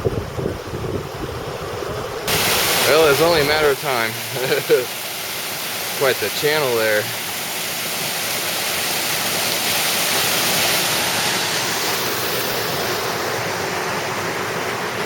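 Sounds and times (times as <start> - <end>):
creek water rushing over rocks: 2.1 - 15.0.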